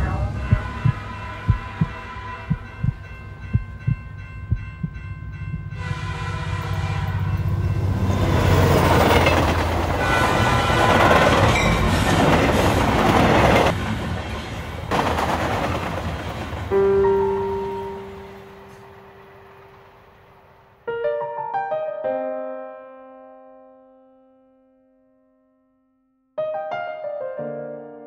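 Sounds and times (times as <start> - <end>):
train horn: 0.0 - 2.9, 5.7 - 8.0, 9.9 - 11.9
moving train rumble: 0.0 - 20.7
slow irregular thumps: 0.5 - 5.8.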